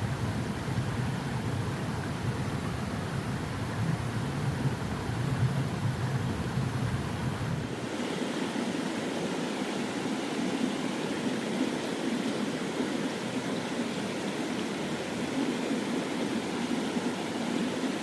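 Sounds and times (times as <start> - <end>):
stream water rushing: 7.6 - 18.0.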